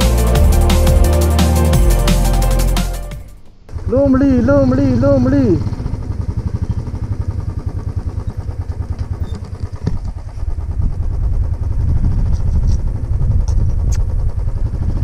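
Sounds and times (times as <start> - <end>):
motorcycle engine running: 3.7 - 15.0.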